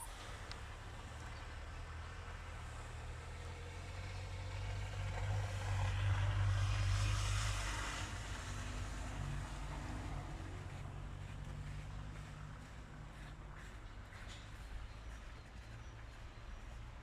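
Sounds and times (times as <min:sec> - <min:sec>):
vehicle passing: 0:03.6 - 0:16.8.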